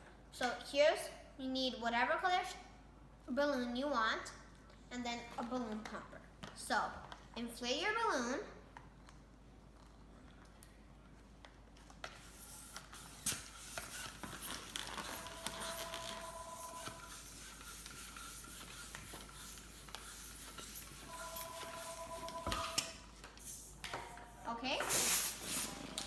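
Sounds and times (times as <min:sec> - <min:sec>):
balloon pump hissing: 0:12.2 - 0:26.0
thin whistling tone: 0:14.9 - 0:17.2, 0:21.0 - 0:22.8.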